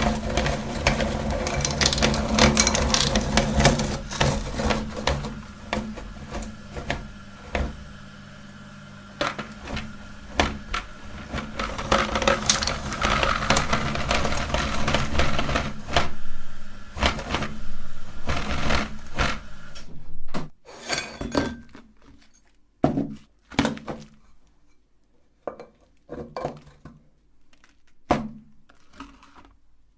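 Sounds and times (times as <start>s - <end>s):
hard candy cracking and crunching: 0.0s - 4.7s, 25.9s - 29.9s
electric meat grinder motor hum: 0.0s - 19.8s.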